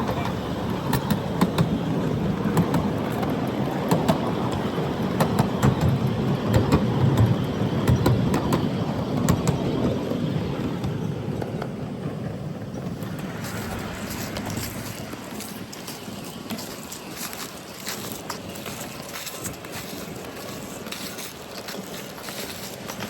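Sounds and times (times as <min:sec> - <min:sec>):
sharp clicks of wheels: 0:00.0 - 0:10.0, 0:12.7 - 0:23.0
miniature train rumbling on track: 0:00.0 - 0:23.0.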